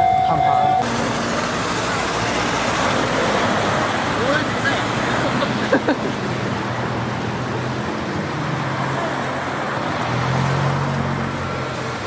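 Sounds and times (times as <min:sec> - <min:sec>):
road traffic passing: 0:00.0 - 0:12.0
vehicle engine hum passing close: 0:00.3 - 0:12.0.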